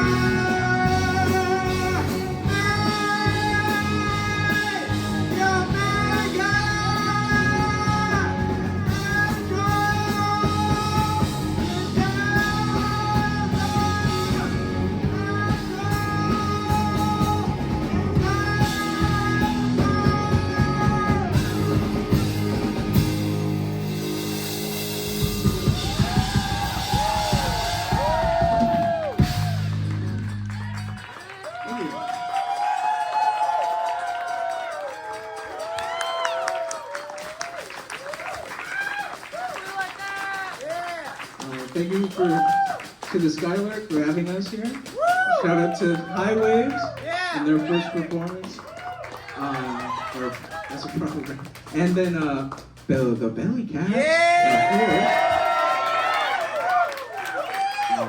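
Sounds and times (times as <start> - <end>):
person singing long notes: 0.0 - 22.6
live rock band playing: 0.0 - 31.3.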